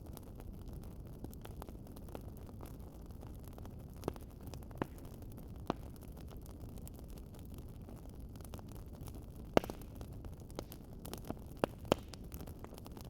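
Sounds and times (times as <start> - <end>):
wood fire crackling: 0.0 - 13.0
sharp pops of fire: 4.0 - 7.0, 8.4 - 13.0.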